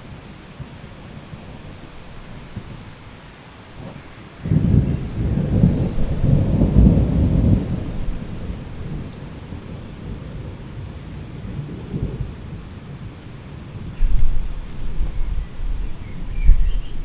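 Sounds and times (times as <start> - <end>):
heavy rain: 0.0 - 17.0
thunder rumble: 3.8 - 17.0.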